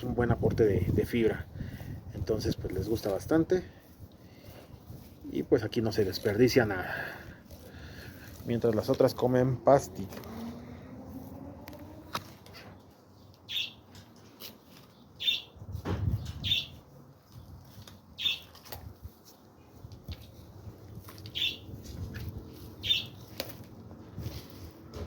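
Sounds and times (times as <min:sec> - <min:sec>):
tortoises crunching watermelon rind: 0:02.4 - 0:15.6, 0:16.6 - 0:25.0
bird chirping: 0:13.1 - 0:14.1, 0:14.7 - 0:15.6, 0:16.2 - 0:17.4, 0:18.1 - 0:18.6, 0:21.2 - 0:21.8, 0:22.8 - 0:23.3.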